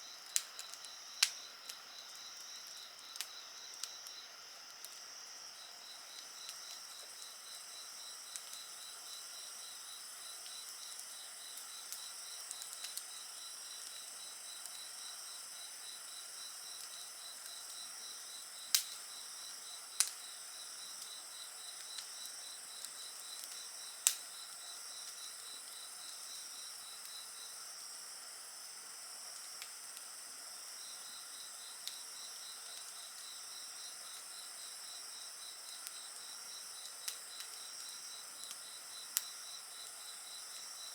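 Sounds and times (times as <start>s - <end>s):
insects trilling: 0.0s - 40.9s
sharp pops from fire: 0.2s - 5.1s, 6.0s - 8.9s, 10.4s - 14.0s, 18.6s - 19.2s, 19.9s - 20.3s, 21.0s - 25.3s, 29.3s - 30.1s, 31.8s - 33.4s, 35.6s - 40.7s
wood fire crackling: 0.2s - 27.5s, 29.2s - 40.9s.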